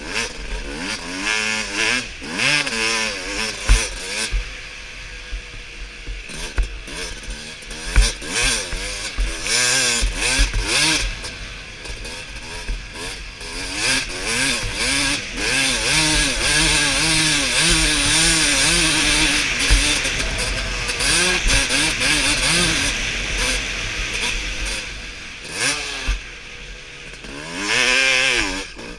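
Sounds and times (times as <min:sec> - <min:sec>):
motorbike engine revving: 0:00.0 - 0:28.9
low thumps: 0:10.0 - 0:27.2.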